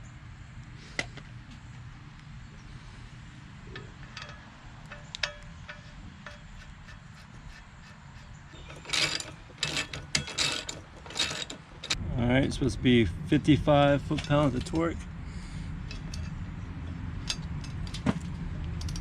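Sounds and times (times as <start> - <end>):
light metallic clinks: 3.7 - 6.5
ratchet wrench clicking: 3.8 - 12.0.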